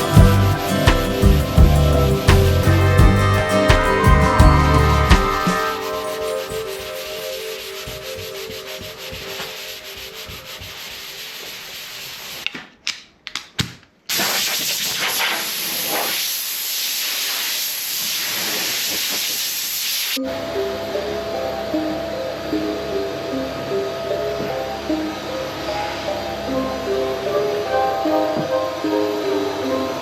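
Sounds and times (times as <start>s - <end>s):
sanding hiss on car bodywork: 5.6s - 12.4s, 14.1s - 20.2s.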